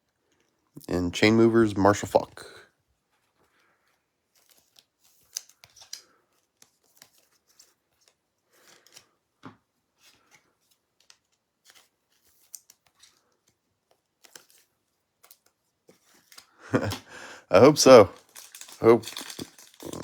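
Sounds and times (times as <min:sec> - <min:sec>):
cardboard cards sliding and rustling: 0:10.0 - 0:17.0.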